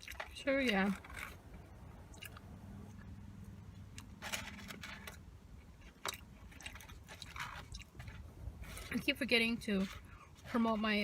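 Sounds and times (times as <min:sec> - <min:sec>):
person chewing food: 0:00.0 - 0:00.3, 0:01.0 - 0:08.9.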